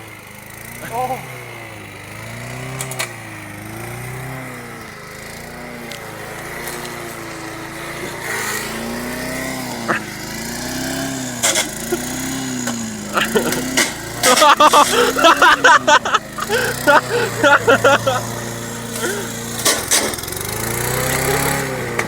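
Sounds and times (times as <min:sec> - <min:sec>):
lawn mower engine surging: 0:00.0 - 0:22.0
engine knocks: 0:08.8 - 0:21.2.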